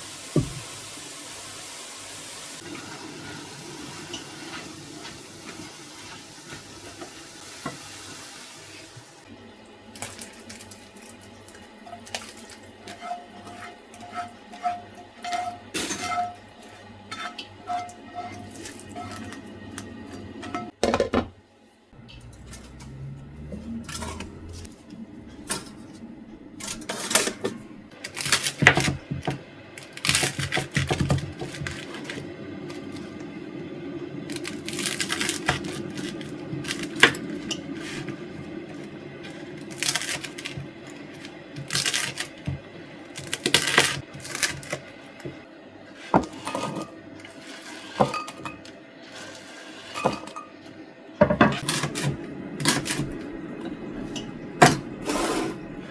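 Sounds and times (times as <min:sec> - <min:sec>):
dishes and utensils clinking: 0:11.8 - 0:21.3, 0:22.0 - 0:26.0, 0:26.6 - 0:29.4, 0:46.1 - 0:47.0, 0:47.7 - 0:55.8.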